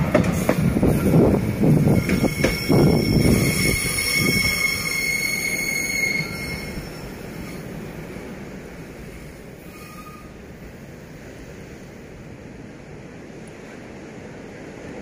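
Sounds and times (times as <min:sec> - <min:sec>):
train rumble: 0:00.0 - 0:15.0
train wheels squealing: 0:00.9 - 0:07.8, 0:09.0 - 0:10.4.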